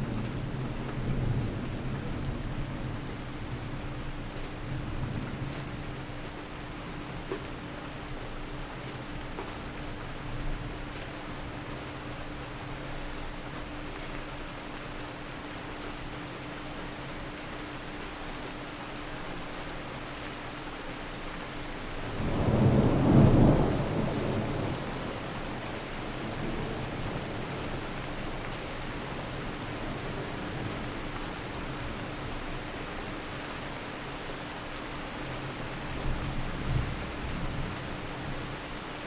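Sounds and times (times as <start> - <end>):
steady rain falling: 0.0 - 39.0
thunder rumbling: 22.1 - 28.2.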